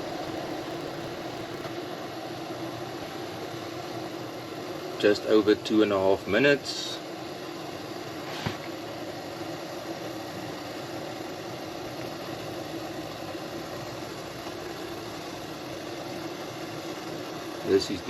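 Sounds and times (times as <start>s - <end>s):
water bubbling at a boil: 0.0s - 1.7s
gas stove flame rushing: 0.0s - 18.0s.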